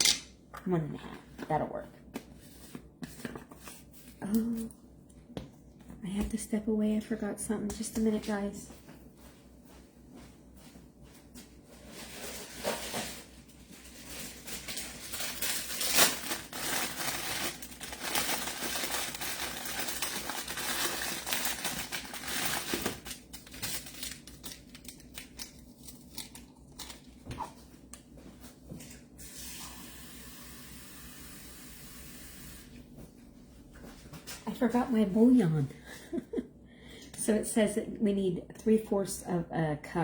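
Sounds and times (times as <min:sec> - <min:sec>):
rustling and crinkling: 0:08.7 - 0:29.0.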